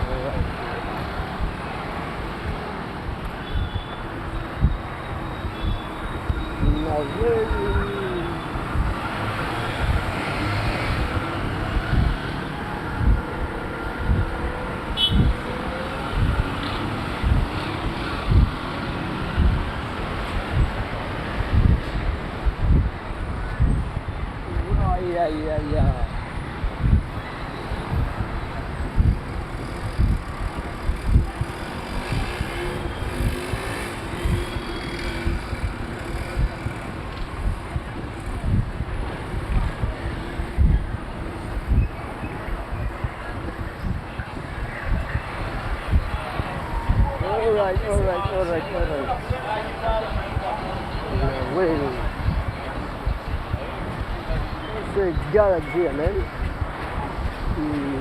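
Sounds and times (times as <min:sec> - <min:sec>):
road traffic passing: 0:00.0 - 0:58.0
wind buffeting microphone: 0:00.0 - 0:58.0
low thumps on microphone: 0:18.3 - 0:18.5, 0:19.4 - 0:19.6, 0:22.4 - 0:22.9, 0:26.6 - 0:27.1.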